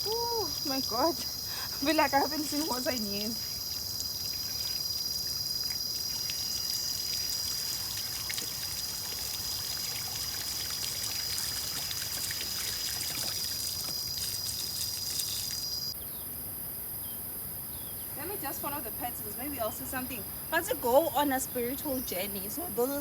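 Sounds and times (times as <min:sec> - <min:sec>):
water trickling: 0:00.0 - 0:15.9
high-pitched insect trill: 0:00.0 - 0:16.2.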